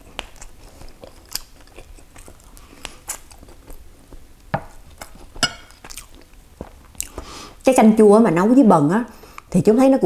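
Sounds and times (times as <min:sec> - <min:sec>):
chewing with wet mouth clicks: 0:00.0 - 0:04.2, 0:04.9 - 0:07.2
chopsticks tapping clay pot: 0:05.4 - 0:05.8.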